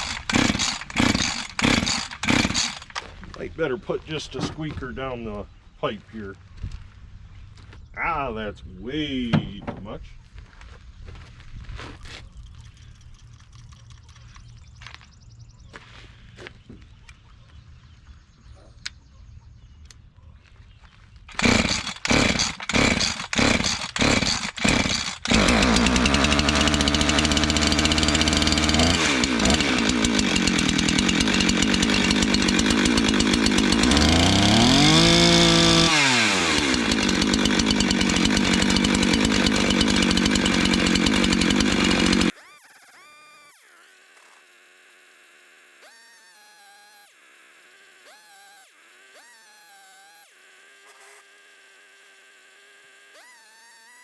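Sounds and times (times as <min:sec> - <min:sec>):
chainsaw pull-start sputtering: 0:00.0 - 0:03.2, 0:21.3 - 0:54.0
chainsaw engine running: 0:00.0 - 0:03.5, 0:21.3 - 0:54.0.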